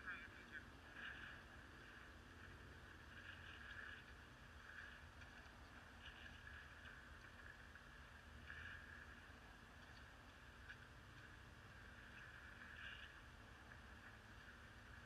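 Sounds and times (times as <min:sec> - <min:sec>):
faint low hum and hiss: 0:00.0 - 0:15.0.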